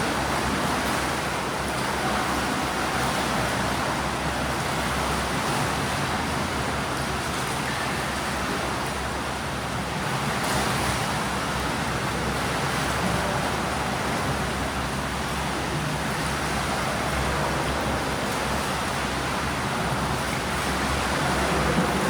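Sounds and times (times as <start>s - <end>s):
swimmers splashing in pool: 15.3s - 22.0s.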